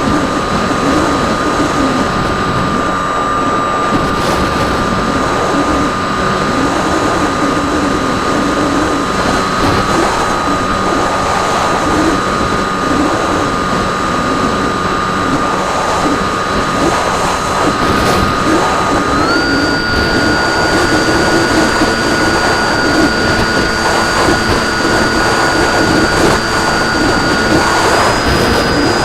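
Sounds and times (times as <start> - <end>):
model plane motor whine: 0.0 - 29.0
rushing airflow: 0.0 - 29.0.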